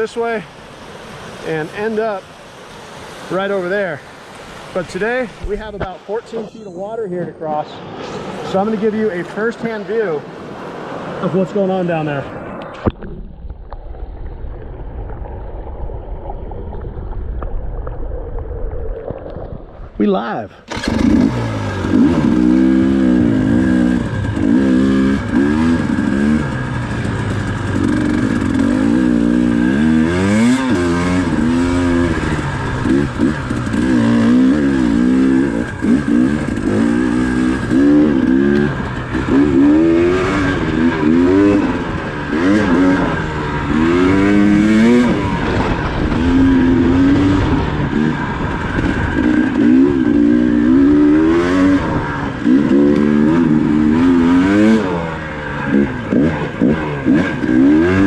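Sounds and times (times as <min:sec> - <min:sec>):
dirt bike engine revving: 0:20.7 - 0:58.0.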